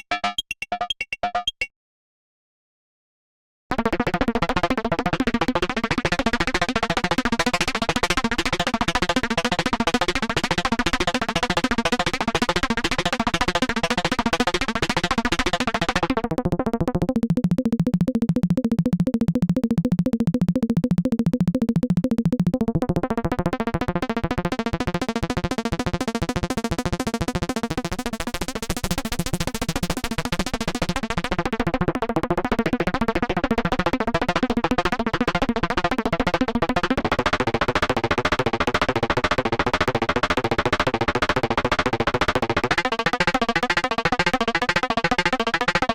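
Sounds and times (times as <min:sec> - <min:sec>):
fast synthesizer melody: 0:00.0 - 0:01.7.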